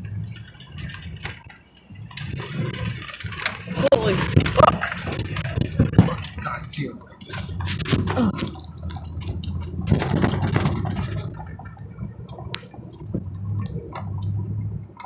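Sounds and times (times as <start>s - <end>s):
knocks and clatters: 0.0s - 15.0s
truck engine drone: 0.0s - 15.0s
tyres churning through slush: 0.0s - 15.0s.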